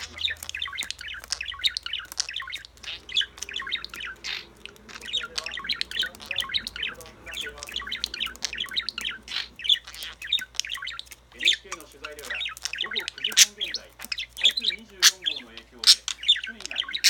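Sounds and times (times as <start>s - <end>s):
budgerigars chattering: 0.0s - 17.0s.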